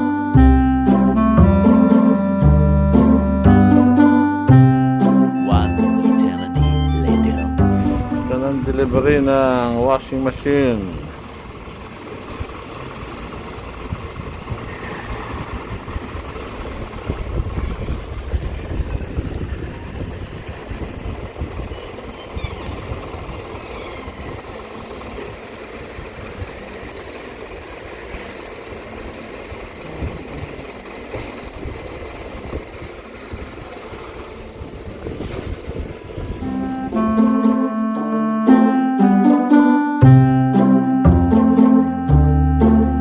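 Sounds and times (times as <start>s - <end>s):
vehicle engine rumble: 0.0s - 43.0s
wind on microphone: 13.8s - 24.7s, 29.8s - 37.4s.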